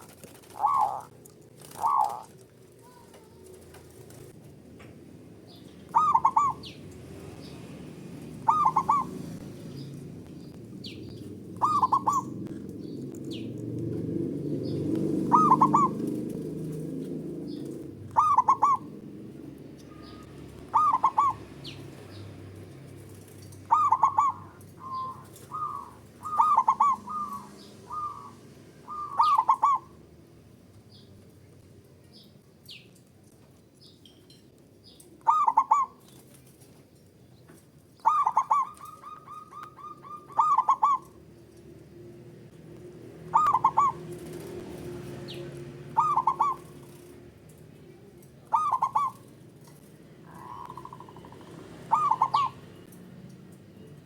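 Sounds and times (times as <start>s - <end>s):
dove cooing: 0.0s - 4.3s, 5.6s - 30.1s, 35.2s - 36.1s, 38.0s - 41.6s, 42.8s - 52.9s
faint high bird chirps: 19.8s - 21.8s, 23.7s - 29.8s.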